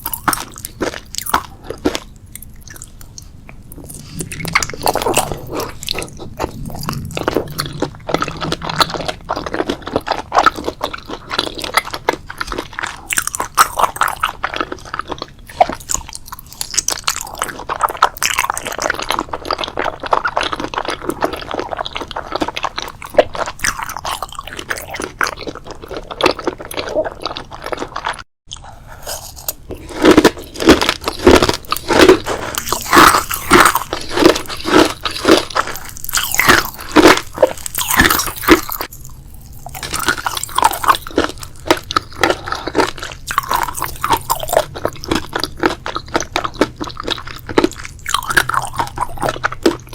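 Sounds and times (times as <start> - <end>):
crunchy food chewing: 0.0 - 49.9.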